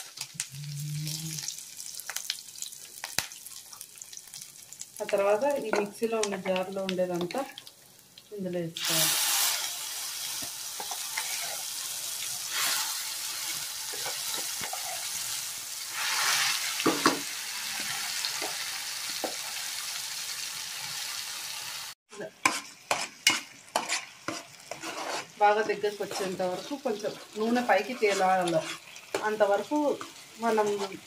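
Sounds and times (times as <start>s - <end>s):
paste sizzling in hot oil: 0.0s - 31.0s
spatula scraping and tapping pan: 10.4s - 11.6s, 22.4s - 31.0s.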